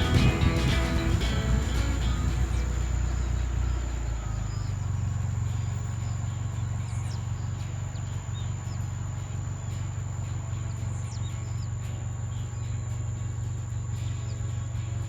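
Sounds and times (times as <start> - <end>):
guitar music: 0.0 - 4.2
vehicle engine humming: 0.0 - 15.0.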